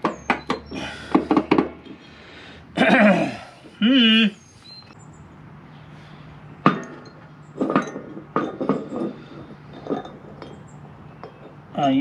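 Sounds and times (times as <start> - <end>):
metal tools clanking on steel: 6.6 - 12.0.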